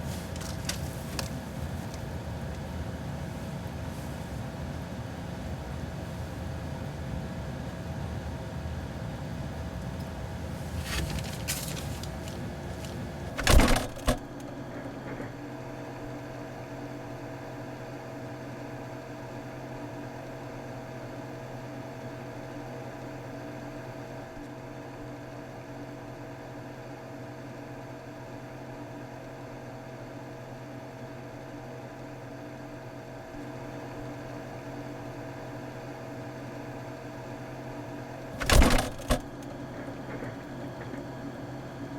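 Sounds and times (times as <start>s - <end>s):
refrigerator humming: 0.0s - 26.3s, 31.1s - 41.9s
loud double thump: 38.4s - 39.4s.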